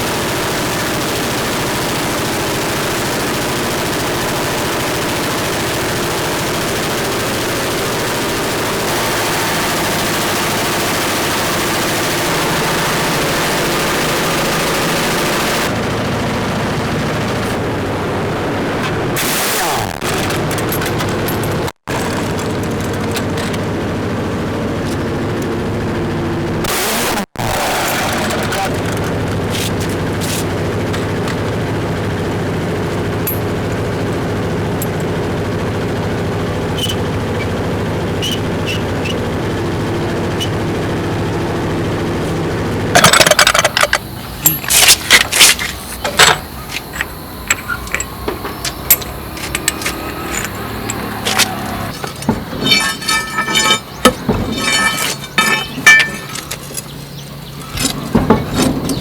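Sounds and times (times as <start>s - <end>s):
engine hum: 0.0s - 59.0s
metal knocks and clanks: 43.0s - 59.0s.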